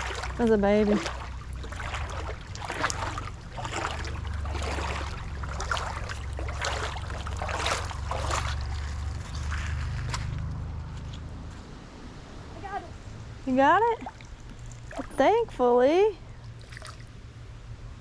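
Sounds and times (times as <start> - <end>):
creek water splashing: 0.0 - 11.3, 13.5 - 15.4, 16.4 - 17.2
low steady rumble: 0.0 - 18.0.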